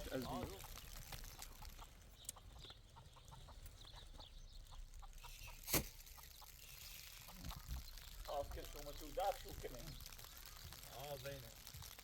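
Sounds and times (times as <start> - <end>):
chickens clucking softly: 0.0 - 8.9.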